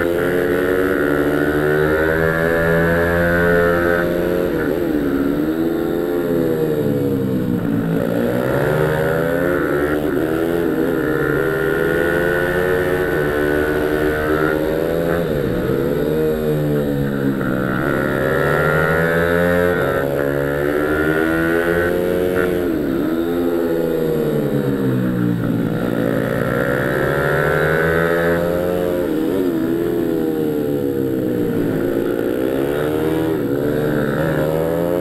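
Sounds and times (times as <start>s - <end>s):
small motorbike engine revving: 0.0s - 35.0s.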